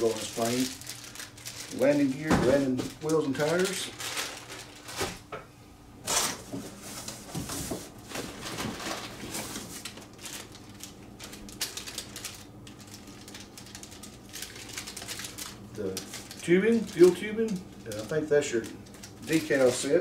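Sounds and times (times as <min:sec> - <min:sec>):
packaging rustling and crinkling: 0:00.0 - 0:05.3, 0:06.1 - 0:20.0.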